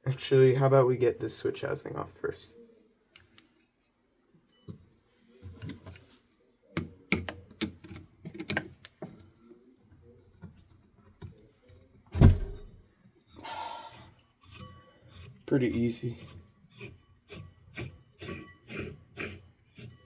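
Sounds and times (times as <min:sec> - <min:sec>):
heavy thump: 0:12.2 - 0:12.8.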